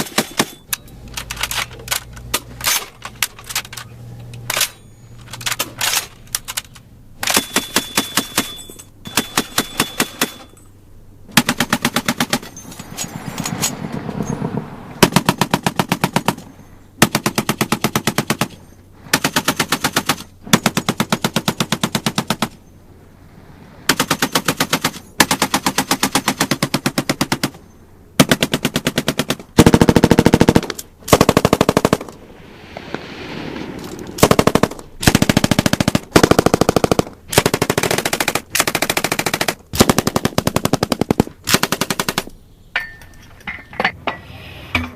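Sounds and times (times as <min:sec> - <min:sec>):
automatic gunfire bursts: 0:07.2 - 0:10.5, 0:28.2 - 0:32.1, 0:34.2 - 0:42.3.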